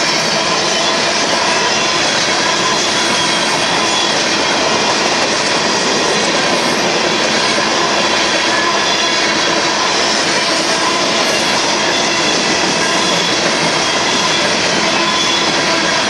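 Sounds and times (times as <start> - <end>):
high squealing tones: 0.0 - 16.0
steel wheels on rail: 0.0 - 16.0.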